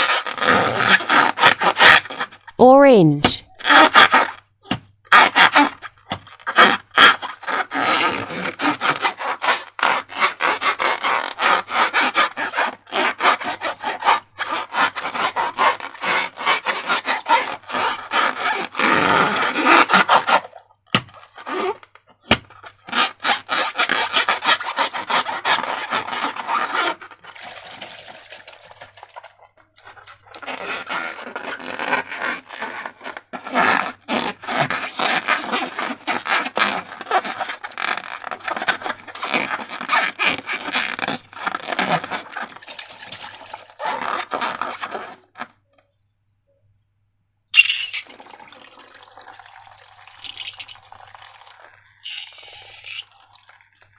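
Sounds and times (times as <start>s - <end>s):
slime crackling and squelching: 51.5s - 53.9s.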